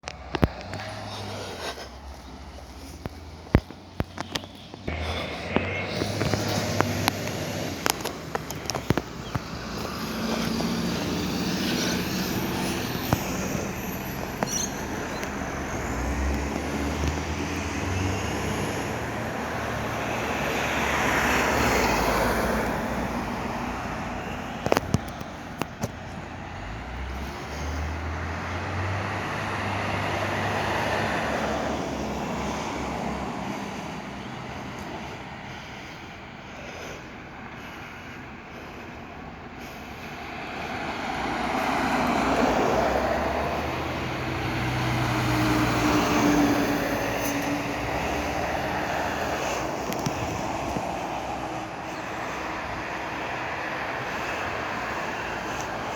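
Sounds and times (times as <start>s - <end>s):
garbage truck diesel engine revving: 0.0s - 24.9s
sharp clicks: 2.9s - 10.7s.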